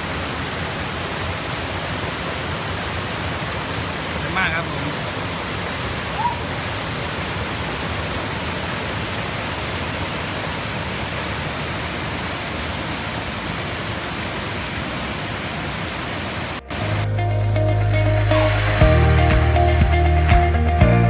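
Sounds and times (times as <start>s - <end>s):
waterfall rushing: 0.0s - 17.1s.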